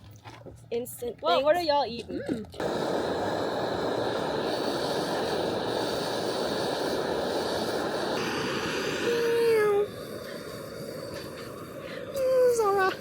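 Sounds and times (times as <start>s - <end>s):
steady rushing hiss: 2.6s - 13.0s.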